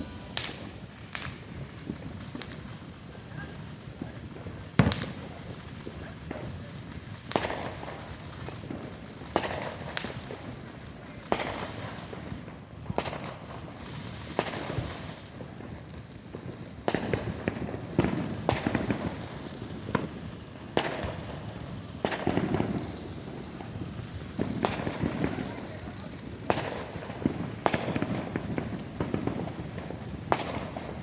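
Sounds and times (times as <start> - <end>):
fireworks bangs: 0.0 - 2.7, 11.2 - 31.0
fireworks crackling: 0.0 - 31.0.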